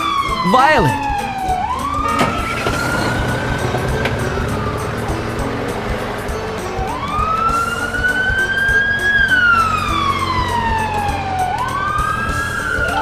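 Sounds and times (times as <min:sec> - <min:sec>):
siren wailing: 0:00.0 - 0:13.0.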